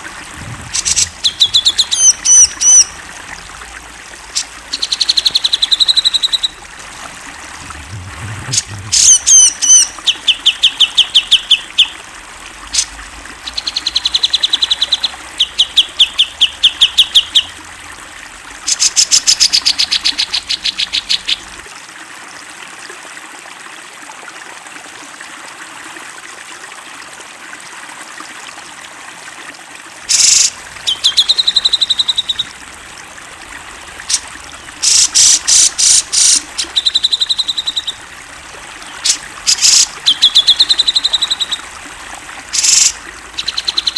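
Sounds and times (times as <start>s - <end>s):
bulbul singing: 0.0s - 12.0s, 12.7s - 17.7s, 30.1s - 43.9s
trickle of running water: 0.0s - 43.9s.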